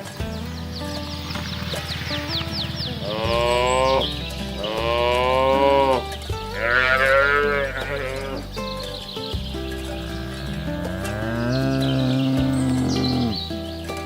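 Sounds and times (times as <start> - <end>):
cows mooing: 1.3 - 8.6, 10.0 - 13.5.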